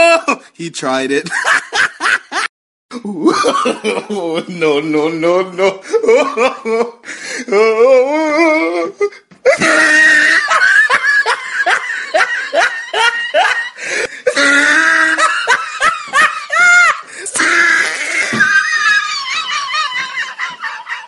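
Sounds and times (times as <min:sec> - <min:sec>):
loud laughter: 0:01.3 - 0:02.5, 0:09.5 - 0:21.0.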